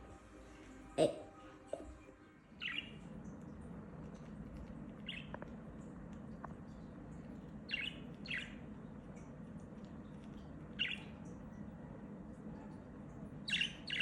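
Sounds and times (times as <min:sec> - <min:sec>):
low background hum: 0:00.0 - 0:14.0
budgerigars chirping: 0:02.6 - 0:03.1, 0:05.0 - 0:05.4, 0:07.7 - 0:08.7, 0:10.7 - 0:11.2, 0:13.4 - 0:14.0.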